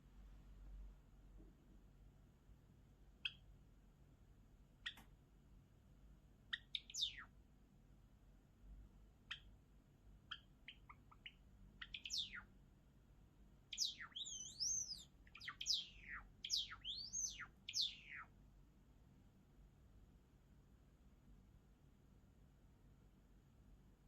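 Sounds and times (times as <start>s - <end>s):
sweeping whistled bird notes: 6.6s - 7.3s, 10.4s - 12.5s, 13.7s - 18.3s.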